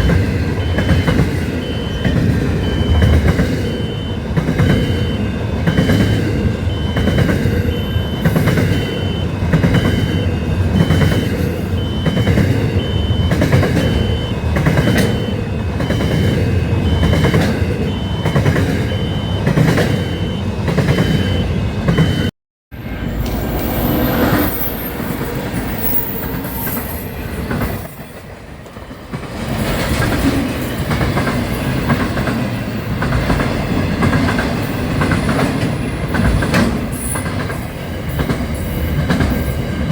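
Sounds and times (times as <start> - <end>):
train wheels clacking over rails: 0.0 - 22.3, 23.2 - 39.9
train rumble: 0.0 - 39.9
pulsing high tone: 0.6 - 22.3.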